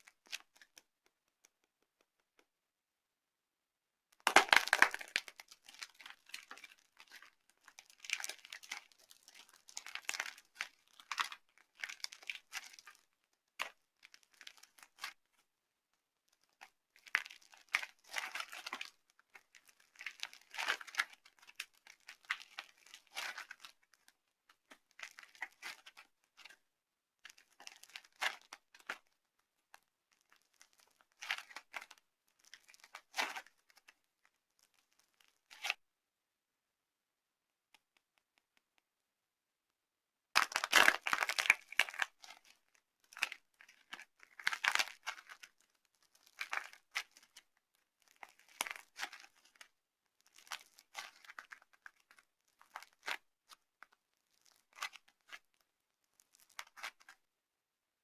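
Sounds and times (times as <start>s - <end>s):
soap crunching by hand: 4.3s - 7.2s, 40.4s - 42.4s.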